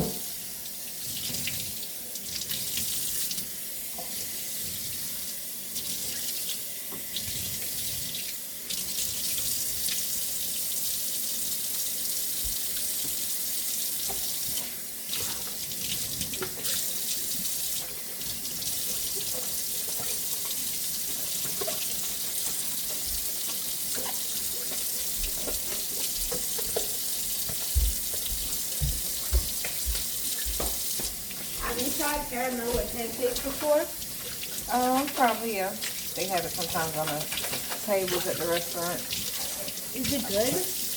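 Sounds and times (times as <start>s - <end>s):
tap running into sink: 0.0s - 0.3s, 19.2s - 40.9s.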